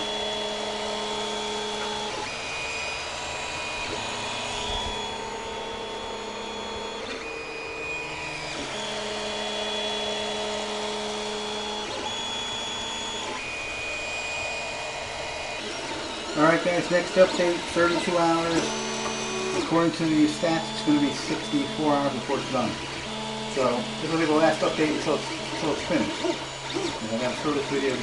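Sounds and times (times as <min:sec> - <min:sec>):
stepper motors whining: 0:00.0 - 0:28.0.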